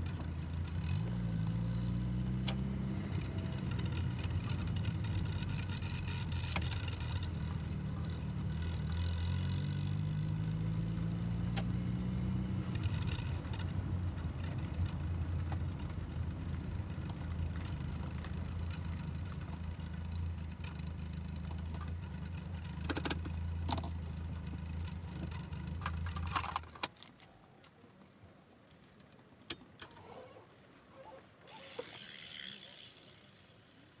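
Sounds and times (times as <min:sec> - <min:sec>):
bicycle freehub ticking: 0:31.6 - 0:33.3.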